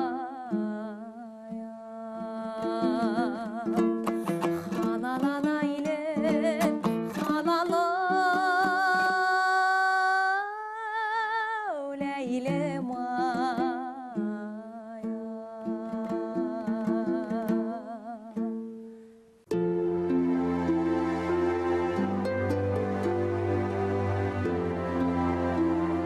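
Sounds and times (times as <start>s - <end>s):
plucked string accompaniment: 0.0s - 9.9s, 11.8s - 26.0s
woman singing with vibrato: 0.0s - 18.6s.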